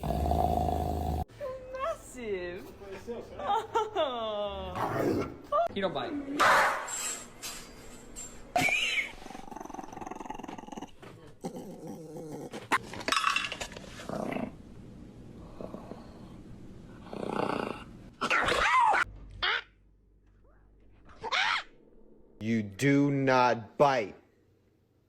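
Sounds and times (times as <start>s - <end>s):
dog growling: 0.0s - 1.3s, 9.2s - 12.8s, 17.0s - 18.6s.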